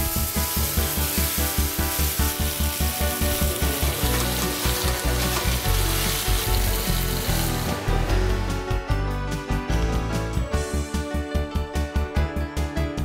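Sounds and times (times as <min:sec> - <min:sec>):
vegetables sizzling in a pan: 0:00.0 - 0:08.0.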